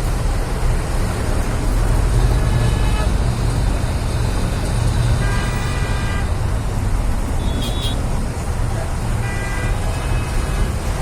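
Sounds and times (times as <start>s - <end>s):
highway traffic rumble: 0.0s - 11.0s
vehicle horn: 5.2s - 6.3s.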